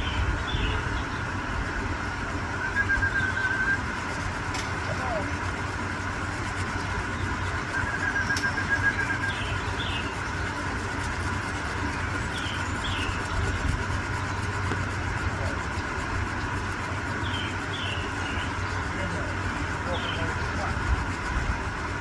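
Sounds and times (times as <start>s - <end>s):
bird chirps: 2.5s - 3.8s, 6.8s - 11.1s, 12.1s - 14.8s, 17.0s - 20.8s
bird rapid trill: 2.5s - 21.6s.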